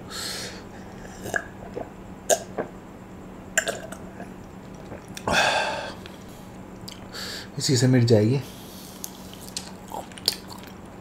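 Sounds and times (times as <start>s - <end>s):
faint steady hum: 0.0s - 11.0s
person chewing: 4.6s - 5.3s, 6.0s - 7.1s, 8.8s - 11.0s.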